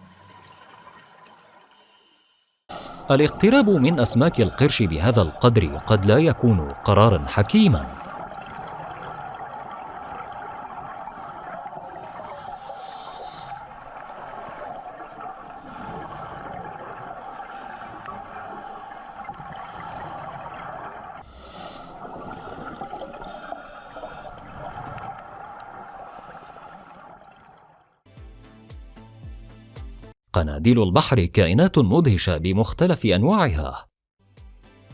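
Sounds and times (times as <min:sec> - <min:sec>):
underwater water noise: 0:00.0 - 0:28.0
bubbling bursts: 0:03.1 - 0:13.4.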